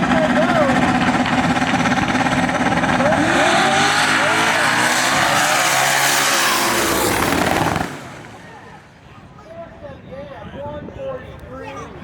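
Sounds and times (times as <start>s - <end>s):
cars accelerating hard: 0.0s - 9.0s
drag car engines revving: 0.0s - 9.1s.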